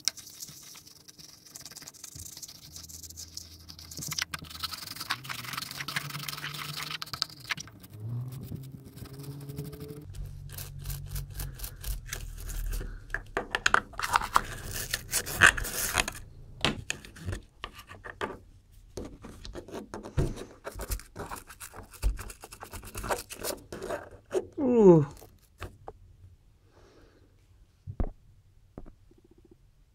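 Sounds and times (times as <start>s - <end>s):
scratchy rubbing strokes: 0.0s - 16.3s.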